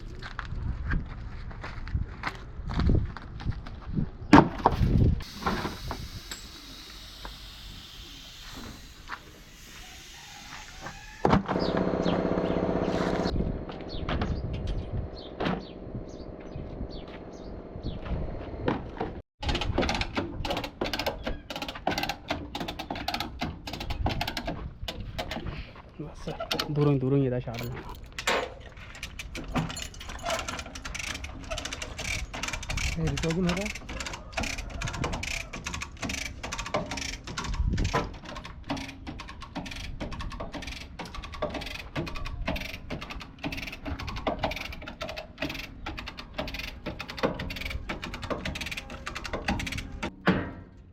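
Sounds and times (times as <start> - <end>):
machine hum: 11.4 - 19.2
metal hand tool clicks and rattles: 19.4 - 25.4, 27.5 - 50.1.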